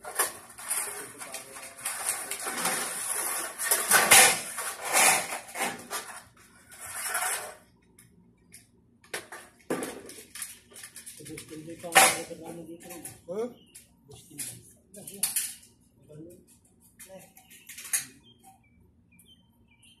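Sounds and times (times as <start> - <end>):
sheet metal panels rattling and clanking: 9.2 - 13.2.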